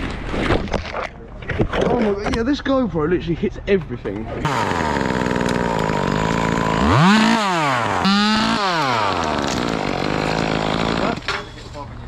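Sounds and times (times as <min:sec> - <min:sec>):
chainsaw running and revving: 0:04.4 - 0:11.3.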